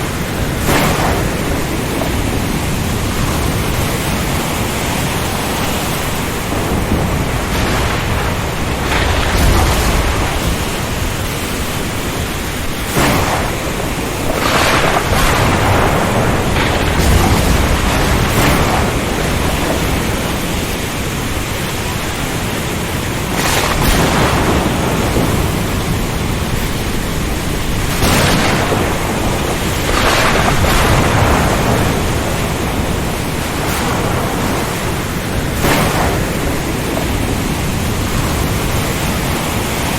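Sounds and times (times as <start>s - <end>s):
low rumbles of thunder: 0.0s - 39.9s
rush of wind rain and sea: 0.0s - 39.9s.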